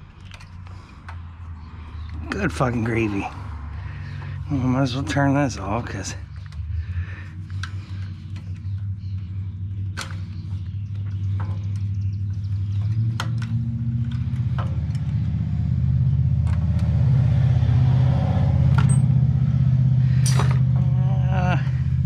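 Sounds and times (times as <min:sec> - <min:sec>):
sharp clicks and knocks: 0:12.8 - 0:15.4.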